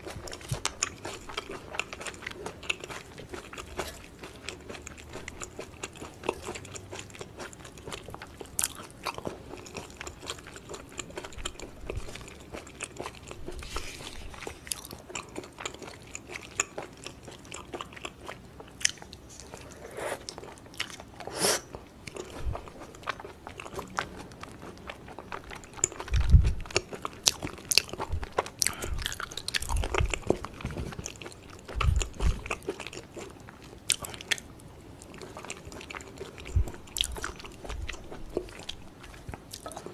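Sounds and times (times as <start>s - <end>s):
person chewing wetly: 0.0s - 39.9s
dull low thumps: 26.1s - 26.6s, 29.8s - 30.9s, 31.8s - 32.5s.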